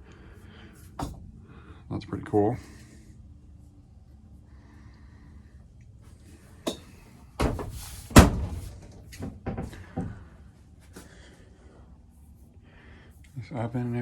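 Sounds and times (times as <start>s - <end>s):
cabinet door thunk: 7.4s - 8.8s.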